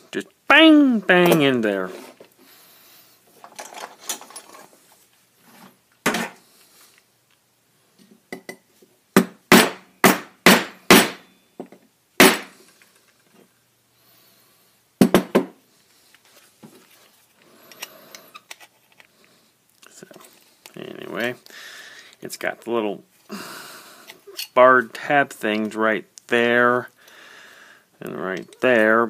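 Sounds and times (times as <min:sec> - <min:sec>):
hammer bangs on metal: 0:09.2 - 0:11.3.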